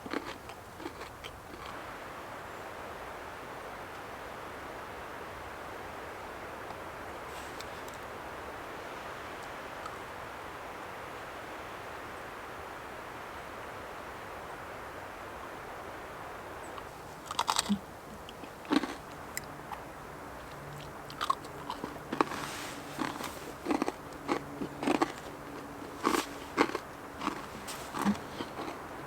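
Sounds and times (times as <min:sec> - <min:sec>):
person chewing crisp cookie: 0:00.0 - 0:01.8, 0:16.8 - 0:29.0
faint steady hiss: 0:00.0 - 0:29.0.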